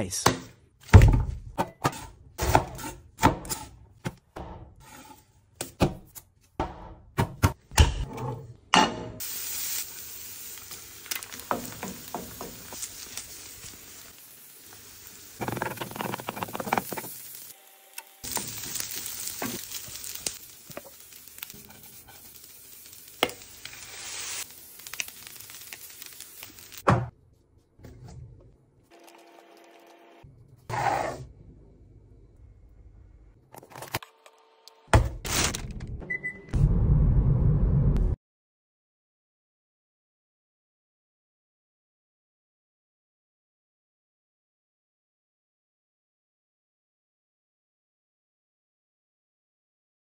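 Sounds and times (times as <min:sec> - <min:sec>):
food sizzling in a hot pan: 0:09.2 - 0:26.9.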